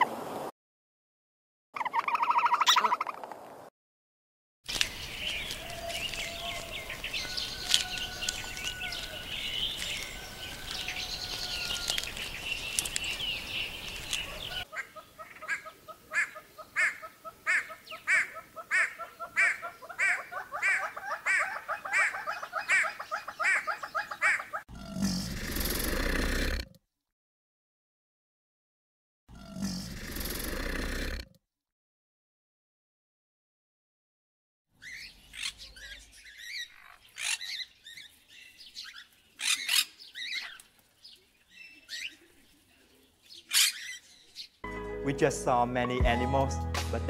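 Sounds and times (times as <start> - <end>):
small birds chirping: 4.7 - 26.5, 34.8 - 44.7.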